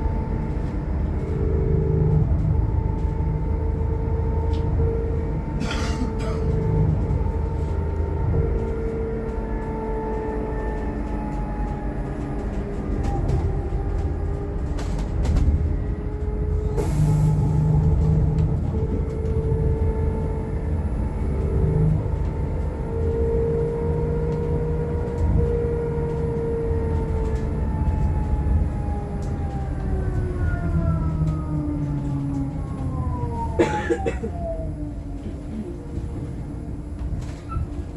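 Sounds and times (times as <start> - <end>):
low road rumble: 0.0 - 37.9.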